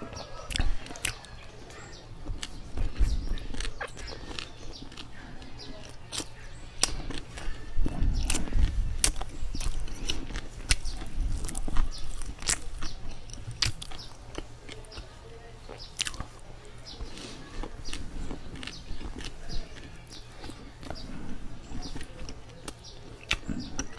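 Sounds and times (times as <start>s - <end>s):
chewing bread: 0.0s - 23.9s
wet mouth clicks and smacks: 0.5s - 1.3s.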